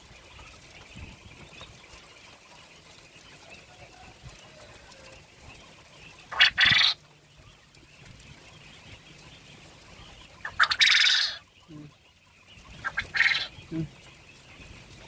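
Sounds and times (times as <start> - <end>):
quail calling: 4.6 - 7.0, 8.1 - 14.8.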